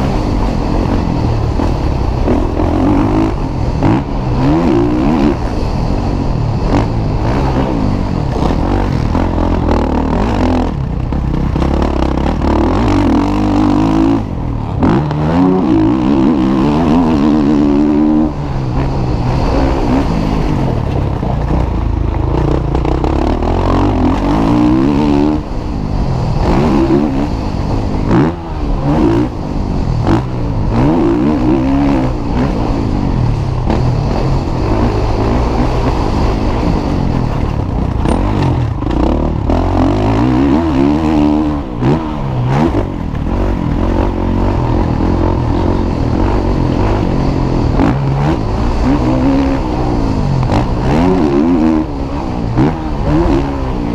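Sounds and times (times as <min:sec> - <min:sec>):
motocross bike engines revving: 0:00.0 - 0:53.9.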